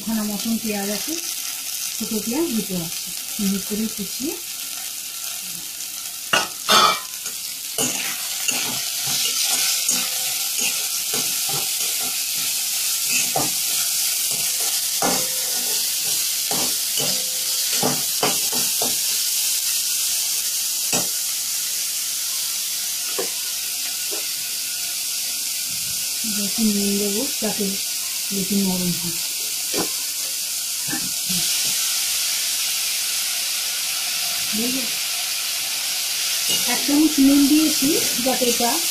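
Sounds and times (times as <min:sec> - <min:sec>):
vegetables sizzling in oil: 0:00.0 - 0:38.9
spatula scraping a pan: 0:06.4 - 0:19.0.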